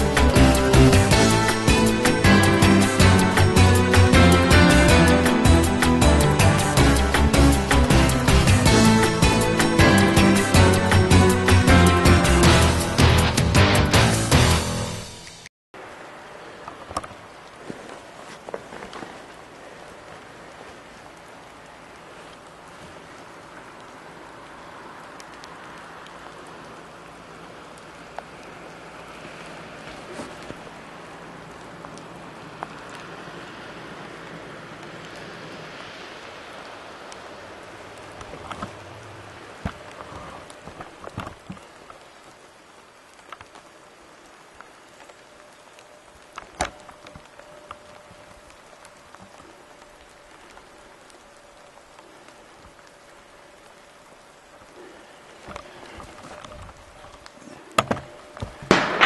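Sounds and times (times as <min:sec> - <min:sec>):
raindrop ticks: 0:00.0 - 0:12.6, 0:15.2 - 0:59.0
rain hissing: 0:00.0 - 0:59.0
sharp crack: 0:58.5 - 0:59.0.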